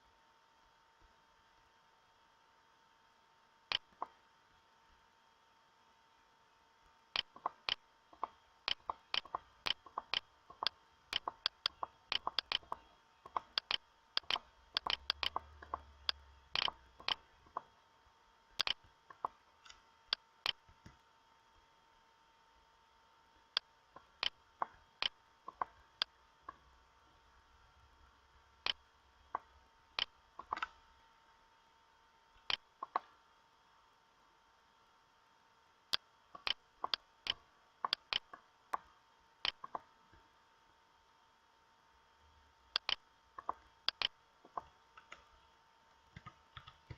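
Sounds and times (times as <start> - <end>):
faint steady whine: 0.0 - 46.9
sharp single clicks: 8.7 - 17.2, 18.6 - 18.8.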